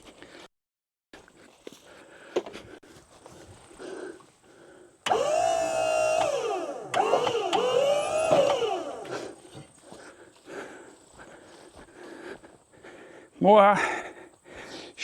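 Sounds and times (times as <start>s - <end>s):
hydraulic pump whining: 5.0s - 9.8s.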